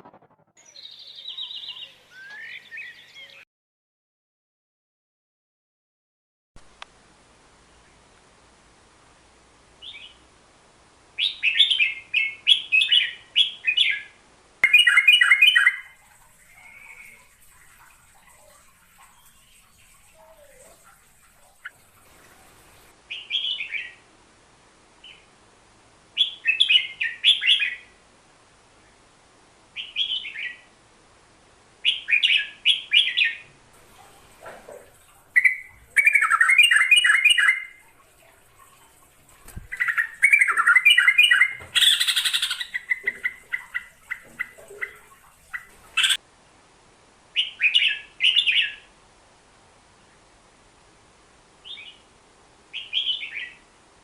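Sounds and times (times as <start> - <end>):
bulbul singing chirping phrases: 0.6 - 3.4, 31.8 - 37.9.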